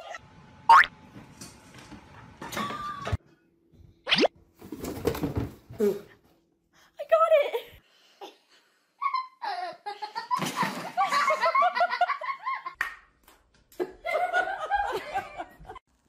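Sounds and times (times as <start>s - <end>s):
people laughing: 9.0s - 12.8s, 13.8s - 15.8s.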